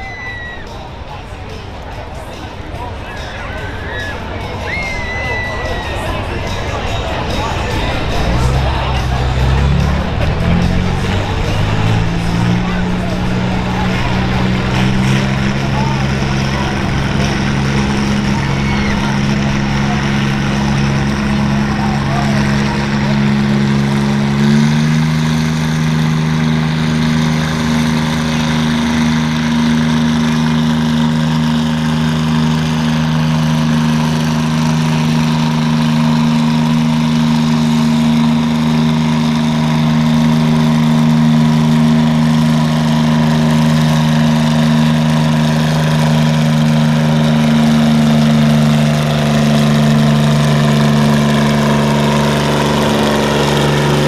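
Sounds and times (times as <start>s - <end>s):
tractor engine running hard: 0.0s - 54.0s.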